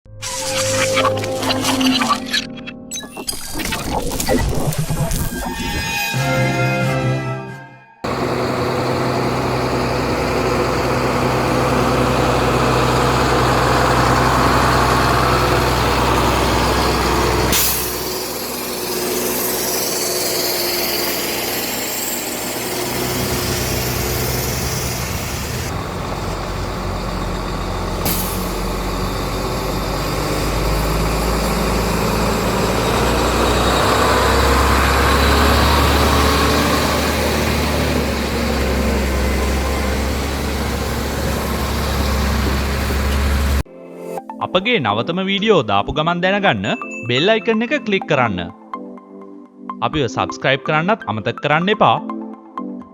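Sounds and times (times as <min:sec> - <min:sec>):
diesel truck engine under load: 0:08.0 - 0:43.7.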